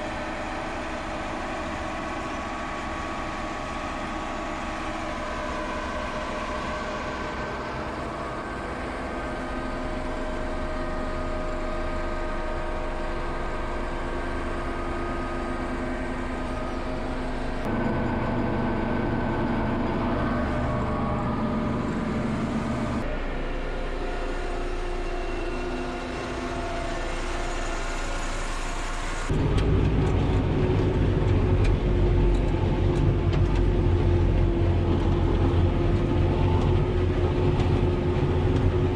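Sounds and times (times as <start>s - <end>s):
farm machinery engines running: 0.0s - 38.9s.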